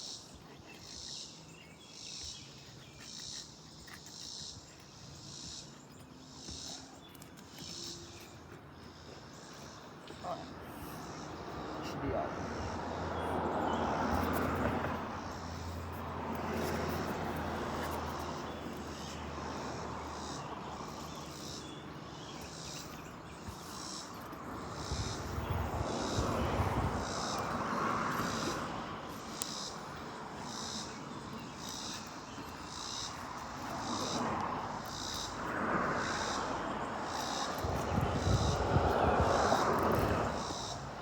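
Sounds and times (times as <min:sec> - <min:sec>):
high-pitched insect call pulsing: 0:23.7 - 0:41.0.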